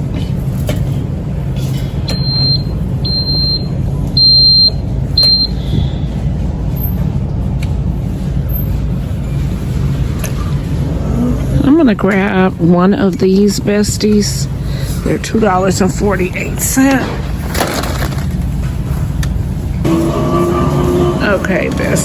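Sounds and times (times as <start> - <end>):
steady low hum: 0.0 - 22.0
reverse warning beeper: 2.1 - 5.8.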